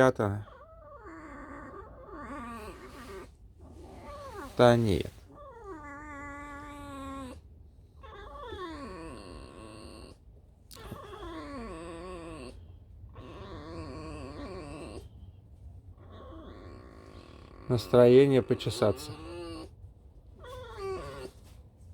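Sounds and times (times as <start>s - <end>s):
fox squeaky whining calls: 16.0s - 19.8s, 20.4s - 21.4s.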